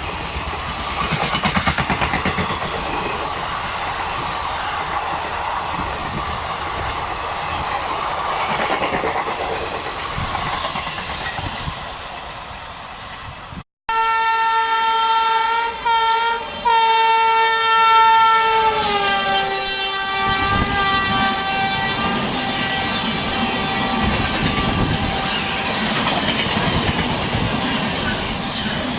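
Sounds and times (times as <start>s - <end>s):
train wheels clattering past: 0.0s - 3.4s, 4.7s - 12.4s, 21.1s - 28.9s
rumble of oncoming train: 0.0s - 28.9s
locomotive air horn: 13.9s - 25.8s.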